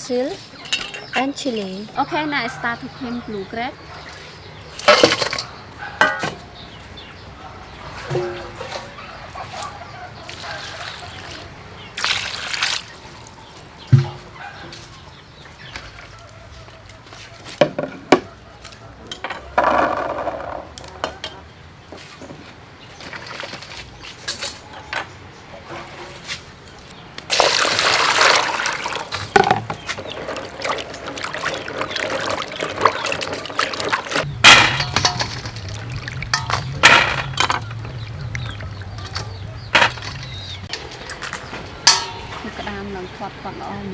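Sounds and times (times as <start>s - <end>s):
water splashing and pouring: 10.2s - 14.4s, 27.3s - 42.6s
low steady hum: 34.2s - 43.9s.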